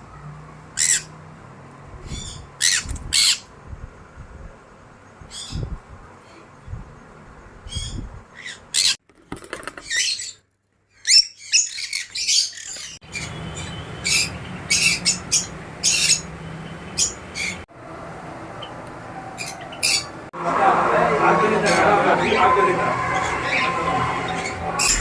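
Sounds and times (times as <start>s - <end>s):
pet birds chirping and squawking: 0.6s - 1.2s, 2.0s - 3.5s, 5.2s - 6.5s, 7.6s - 9.0s, 9.6s - 17.6s, 18.6s - 20.2s.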